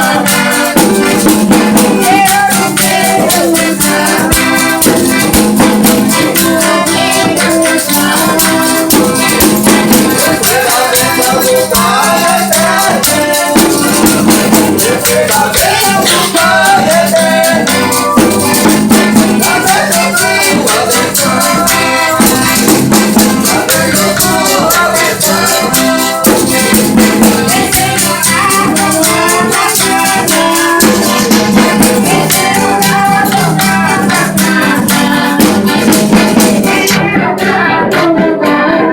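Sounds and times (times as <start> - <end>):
shaker rattling a fast beat: 0.0 - 38.9
voices singing a melody: 0.0 - 38.9.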